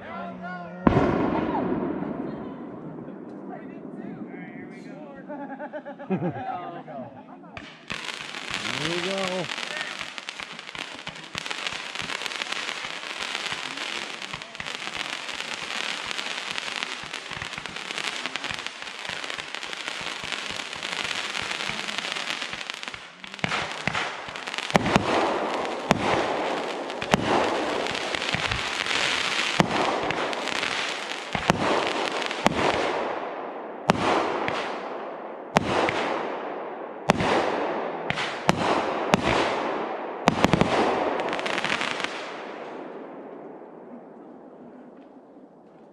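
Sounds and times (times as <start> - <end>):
fireworks crackling: 7.6 - 36.3, 37.0 - 43.4.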